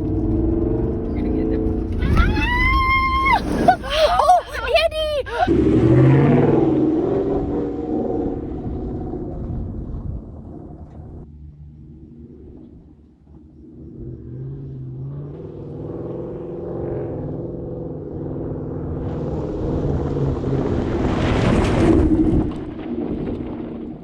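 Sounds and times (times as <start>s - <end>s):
tyres rushing on dirt: 0.0s - 6.3s.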